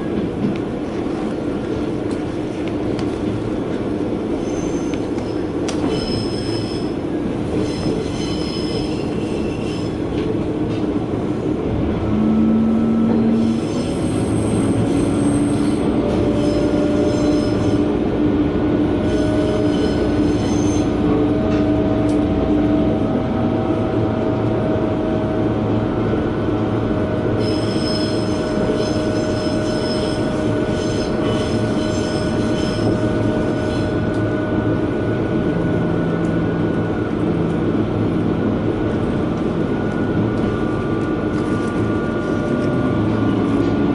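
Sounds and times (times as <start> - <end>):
railcar engine droning: 0.0 - 43.9
wheels rumbling on rails: 0.0 - 43.9
wheels squealing: 19.0 - 21.0, 27.4 - 33.8.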